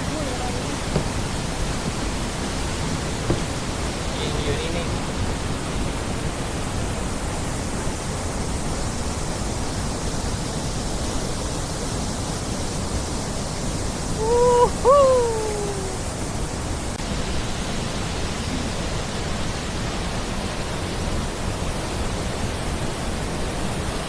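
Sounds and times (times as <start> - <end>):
short pitched calls: 14.2 - 16.2.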